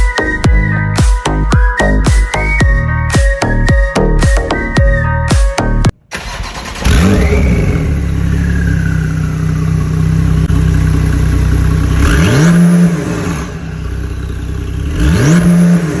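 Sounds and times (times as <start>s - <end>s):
car engine starting and idling: 5.8s - 16.0s
car engine revving: 6.1s - 16.0s.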